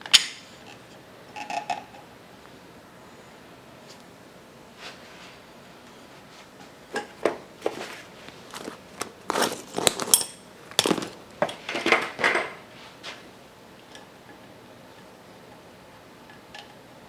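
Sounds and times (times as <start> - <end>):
metal tools clinking on workbench: 9.8 - 12.6.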